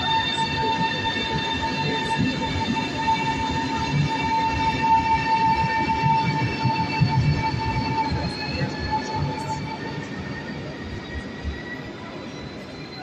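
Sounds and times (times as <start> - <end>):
electric train whine: 0.0 - 13.0.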